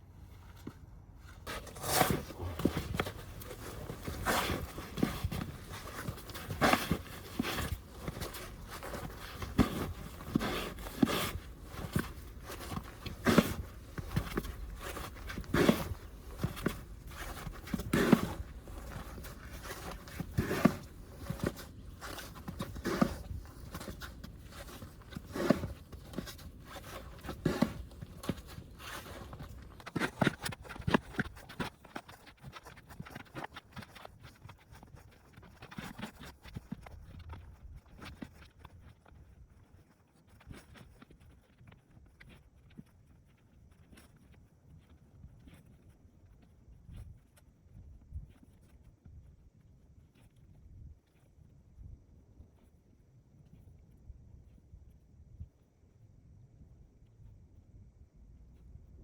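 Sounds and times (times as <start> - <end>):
footsteps in snow: 0.3 - 31.6
snow shovel scraping snow: 1.5 - 30.2.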